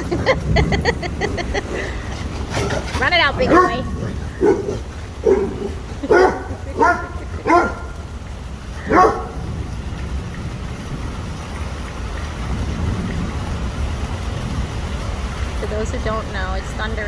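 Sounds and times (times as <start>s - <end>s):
rain: 0.0s - 17.0s
dog barking: 3.4s - 8.0s, 8.8s - 9.5s.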